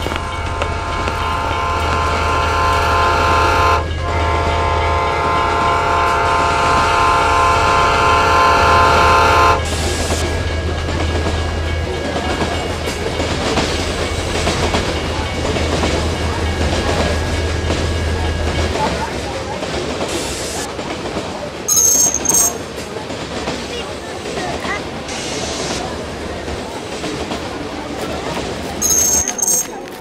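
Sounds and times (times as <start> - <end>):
train carriages clattering on rails: 0.0 - 30.0
train whistle blasts: 0.2 - 9.8, 21.7 - 22.6.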